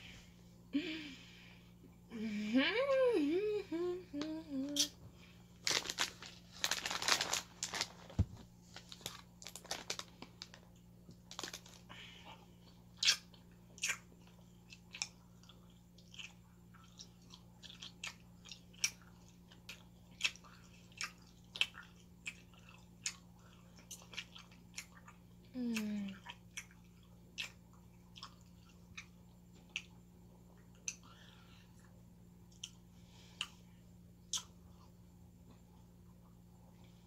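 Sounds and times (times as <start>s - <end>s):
person chewing food: 9.2s - 33.7s, 34.3s - 35.8s.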